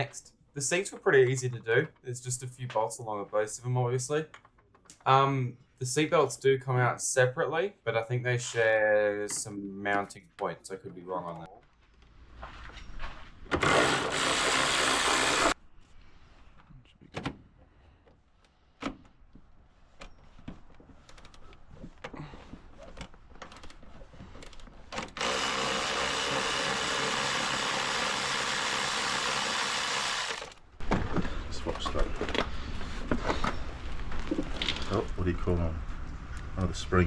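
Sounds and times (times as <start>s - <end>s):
power tool running: 13.6s - 15.6s, 25.1s - 30.6s.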